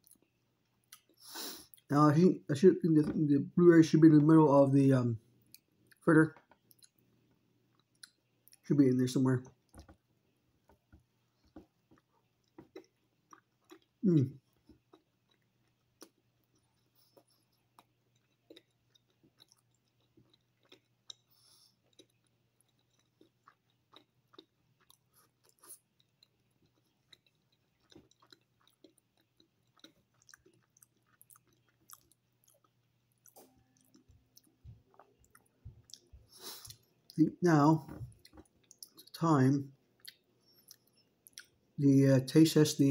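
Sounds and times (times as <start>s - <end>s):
close-mouthed chewing: 5.4s - 8.6s, 10.6s - 37.2s, 37.8s - 39.2s, 39.9s - 41.6s.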